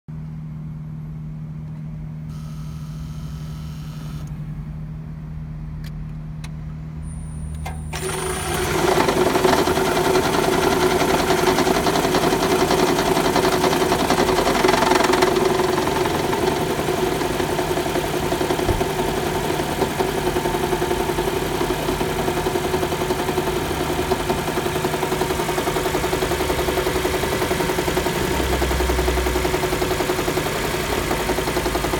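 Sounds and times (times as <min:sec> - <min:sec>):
low steady hum: 0:00.1 - 0:08.0
car engine starting and running: 0:01.6 - 0:31.9.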